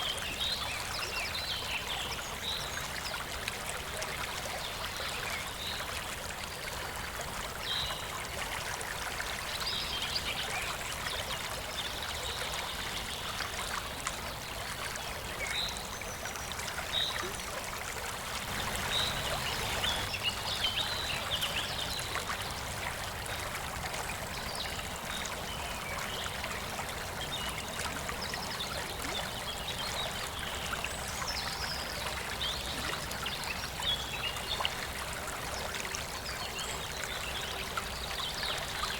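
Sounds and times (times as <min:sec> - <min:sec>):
waterfall rushing and trickling: 0:00.0 - 0:38.9.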